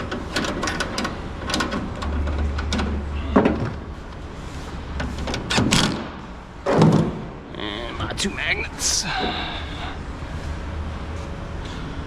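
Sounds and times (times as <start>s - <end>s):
metal parts clicking and knocking: 0.0s - 3.0s.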